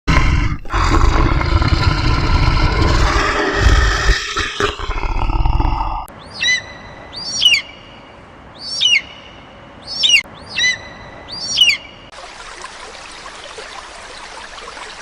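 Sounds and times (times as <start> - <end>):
loud deep roar: 0.1 - 6.1.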